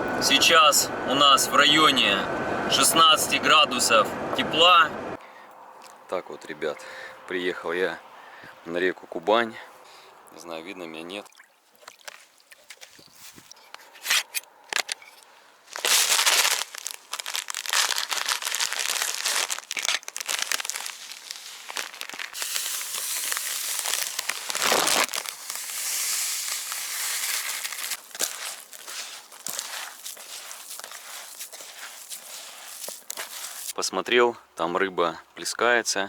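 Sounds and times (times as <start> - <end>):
footsteps through dry grass and brush: 15.7 - 33.8.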